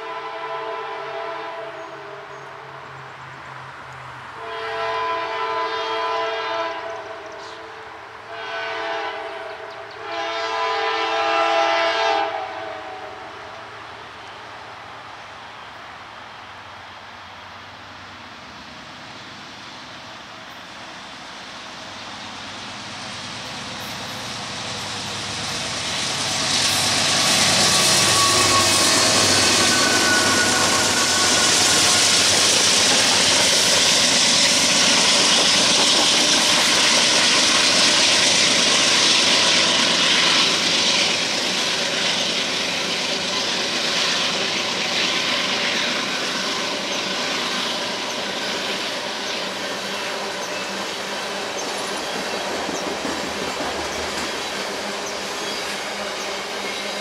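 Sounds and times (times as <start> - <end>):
diesel locomotives passing: 0.0 - 57.0
train wheels rolling on rails: 13.4 - 57.0
wheel squeal: 26.5 - 36.9.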